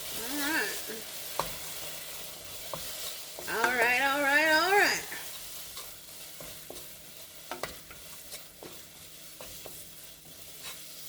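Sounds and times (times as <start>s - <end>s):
stew sizzling in a pot: 0.0s - 11.0s
utensil scraping a pot: 5.0s - 11.0s.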